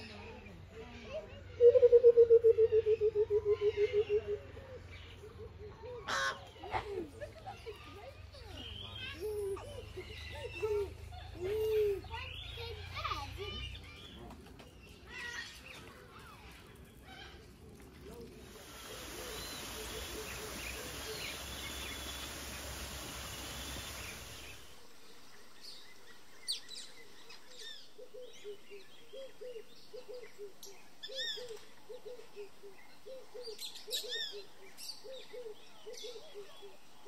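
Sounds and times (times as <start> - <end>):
birds chirping and whistling: 18.9 - 24.8.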